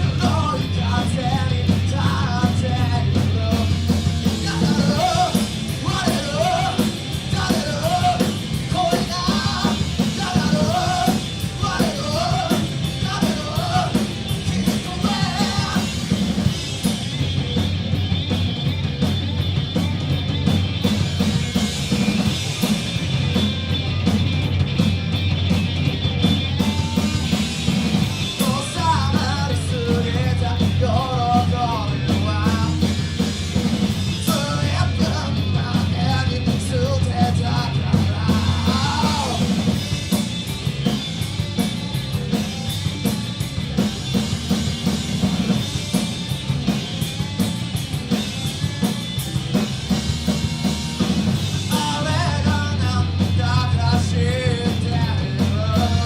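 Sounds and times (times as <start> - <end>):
person singing: 0.0 - 16.1
rock band playing: 0.0 - 56.0.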